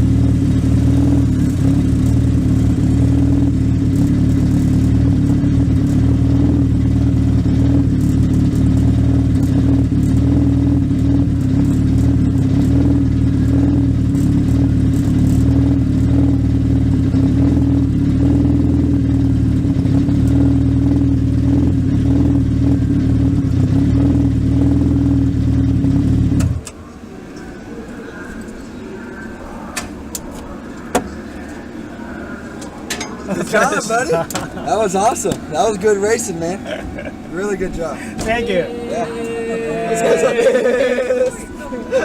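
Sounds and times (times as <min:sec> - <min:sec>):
motorcycle engine running steadily: 0:00.0 - 0:26.6.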